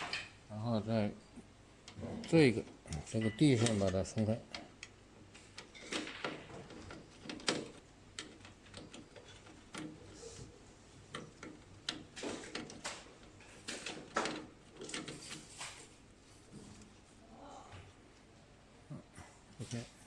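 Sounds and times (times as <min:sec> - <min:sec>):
plastic and metal parts clicking: 0:01.8 - 0:10.1, 0:11.0 - 0:15.8.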